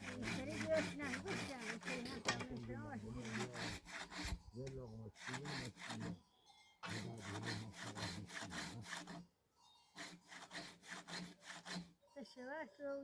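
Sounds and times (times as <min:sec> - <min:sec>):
hand saw cutting wood: 0:00.0 - 0:06.2, 0:06.8 - 0:09.3, 0:09.9 - 0:12.0.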